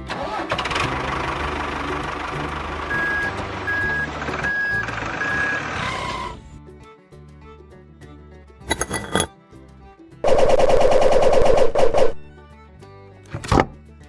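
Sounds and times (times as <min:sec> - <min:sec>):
background music: 0:00.0 - 0:14.0
truck engine running: 0:00.2 - 0:06.0.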